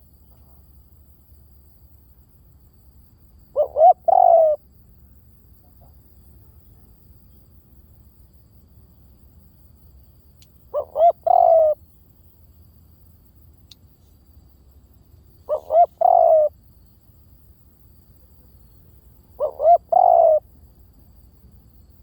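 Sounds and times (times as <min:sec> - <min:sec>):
dove cooing: 0:03.6 - 0:04.6, 0:10.7 - 0:11.8, 0:15.4 - 0:16.6, 0:19.3 - 0:20.5.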